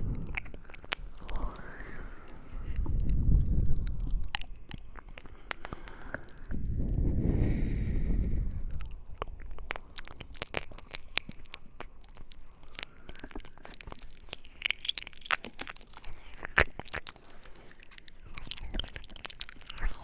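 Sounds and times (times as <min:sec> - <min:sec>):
wet mouth clicks and smacks: 0:00.0 - 0:07.1, 0:08.2 - 0:20.0.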